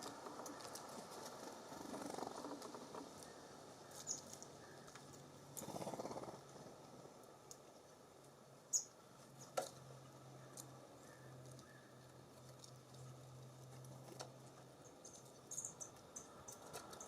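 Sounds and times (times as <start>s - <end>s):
birds pecking and tapping: 7.4s - 17.0s.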